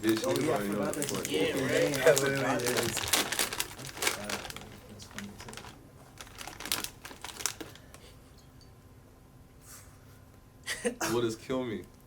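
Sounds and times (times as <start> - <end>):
plastic snack bag crinkling: 0.0 - 8.0.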